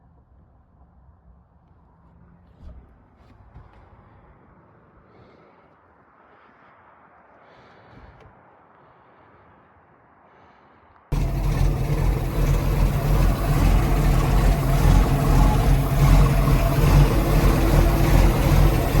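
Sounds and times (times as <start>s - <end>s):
boat engine running: 11.1s - 19.0s.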